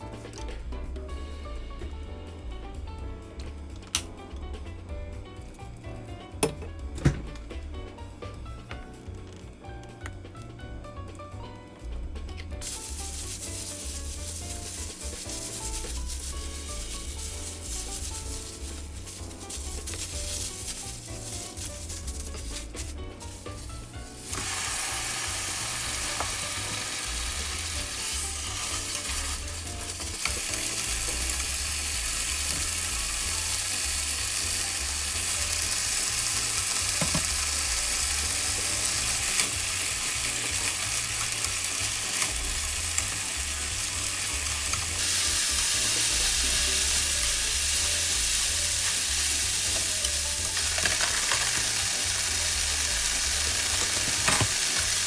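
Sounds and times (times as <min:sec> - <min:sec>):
food sizzling in a frying pan: 0:12.6 - 0:55.0.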